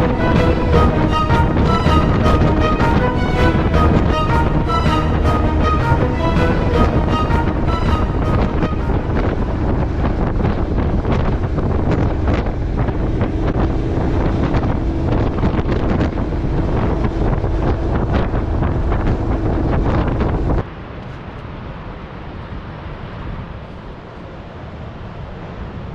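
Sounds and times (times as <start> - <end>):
wind buffeting microphone: 0.0 - 20.7
road noise: 0.0 - 21.0.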